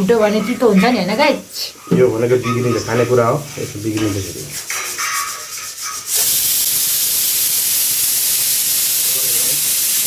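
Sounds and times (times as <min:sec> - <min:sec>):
water running from a tap: 0:02.0 - 0:10.0.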